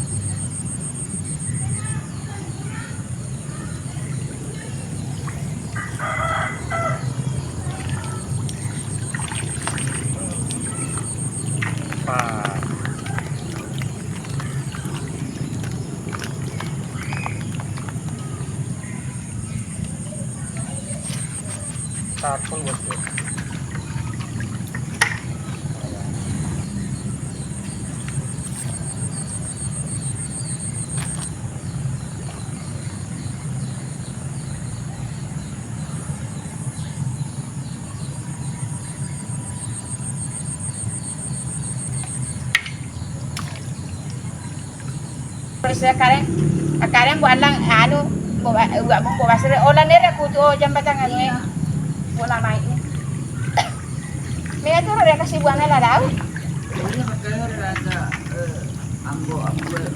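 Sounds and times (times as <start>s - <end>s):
insect trilling: 0.0s - 31.5s
low outdoor rush: 0.0s - 59.9s
rooster crowing: 5.7s - 8.2s, 48.6s - 51.6s.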